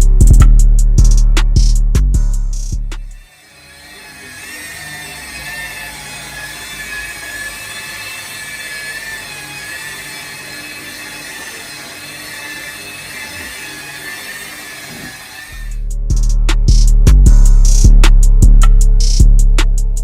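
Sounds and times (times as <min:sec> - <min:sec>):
power tool whining: 0:03.0 - 0:15.8.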